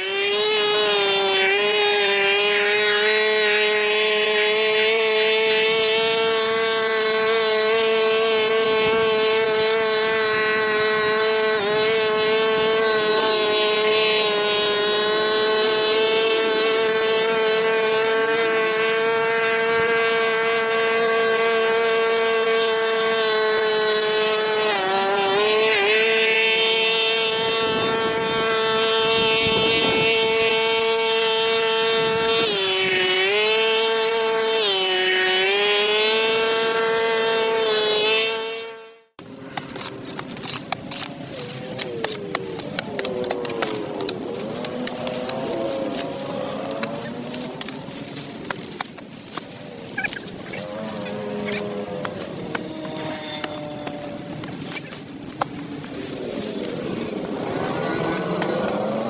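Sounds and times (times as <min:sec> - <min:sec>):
power tool motor whining: 0:00.0 - 0:59.0.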